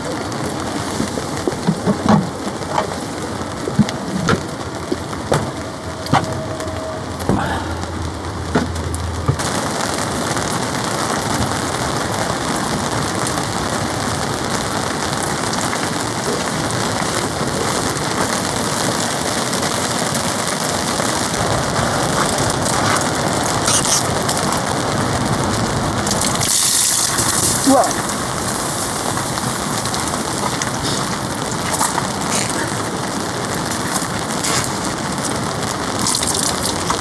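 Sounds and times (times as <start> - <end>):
heavy rain on a tarp: 0.0 - 37.0.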